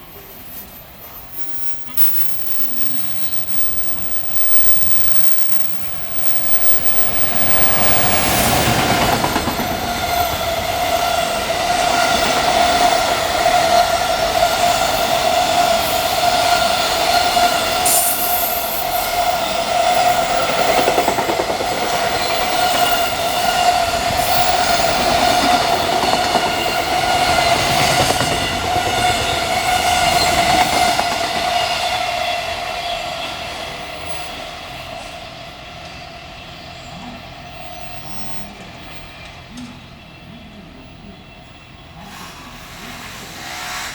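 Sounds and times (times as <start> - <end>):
freight train rumble and clatter: 0.0 - 43.9
high ringing tone: 1.5 - 8.2.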